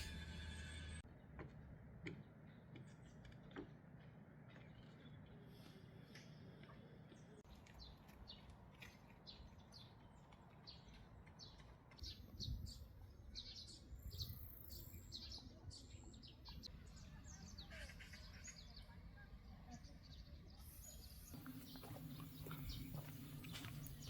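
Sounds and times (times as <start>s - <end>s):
birds chirping: 2.2s - 24.0s.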